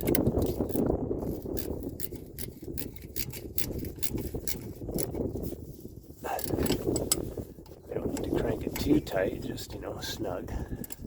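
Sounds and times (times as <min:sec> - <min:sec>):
ratchet wrench clicking: 0:00.0 - 0:05.2.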